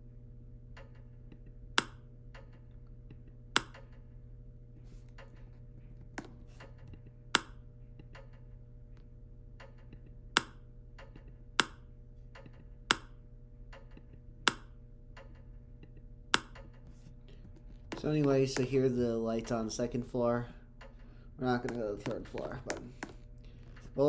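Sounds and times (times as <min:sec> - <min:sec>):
steady low hum: 0:00.0 - 0:24.0
light switch clicks: 0:01.8 - 0:02.0, 0:03.6 - 0:03.8, 0:07.4 - 0:07.6, 0:11.6 - 0:11.8, 0:12.9 - 0:13.2, 0:14.4 - 0:14.8, 0:16.3 - 0:16.7.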